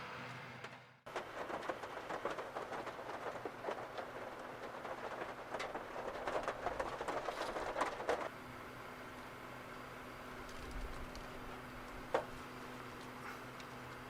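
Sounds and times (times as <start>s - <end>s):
heavy rain pattering on car: 1.1s - 8.3s.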